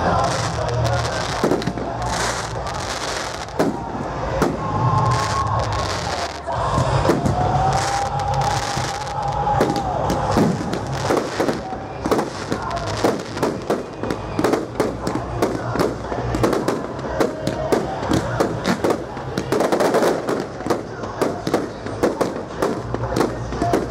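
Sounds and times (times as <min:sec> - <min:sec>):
firework bangs and crackles: 0:00.0 - 0:23.9.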